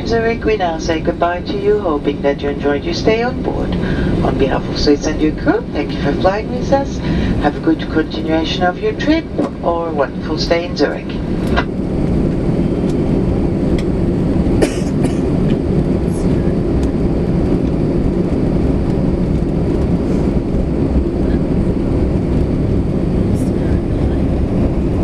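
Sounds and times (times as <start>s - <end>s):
aircraft engines idling rumble: 0.0s - 25.0s
wheels rolling on taxiway: 15.3s - 25.0s.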